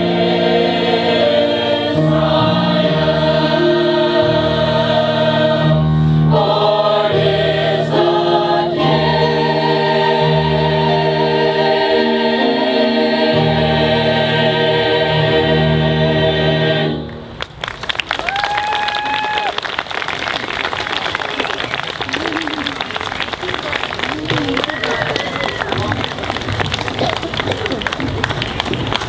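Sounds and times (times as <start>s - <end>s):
choir singing: 0.0s - 17.3s
audience applause: 17.4s - 29.0s
person cheering: 18.2s - 19.7s, 21.0s - 28.2s.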